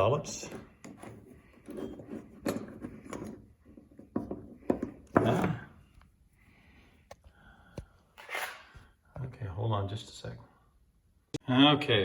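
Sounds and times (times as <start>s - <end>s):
tools knocking and scraping metal: 0.0s - 5.7s.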